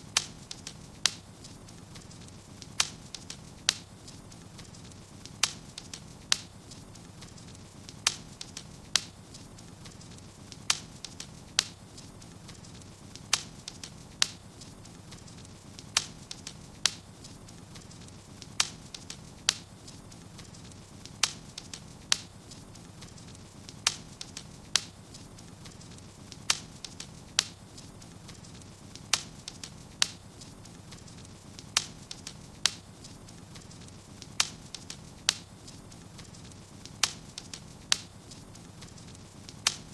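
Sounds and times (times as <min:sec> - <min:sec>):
low rumble of burning: 0:00.0 - 0:39.9
sharp pops of burning wood: 0:00.0 - 0:39.9
wood fire crackling: 0:00.0 - 0:39.9.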